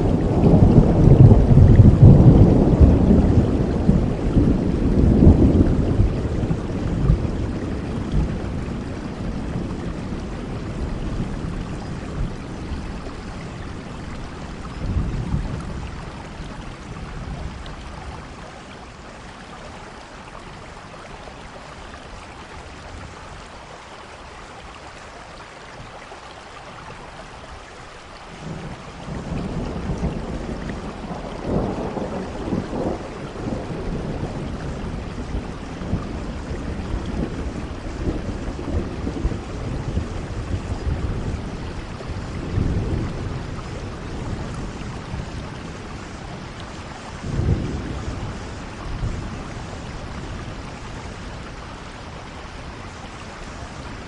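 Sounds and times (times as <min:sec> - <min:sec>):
rolling thunder rumbles: 0:00.0 - 0:19.4, 0:28.3 - 0:54.0
steady rain falling: 0:00.0 - 0:54.0.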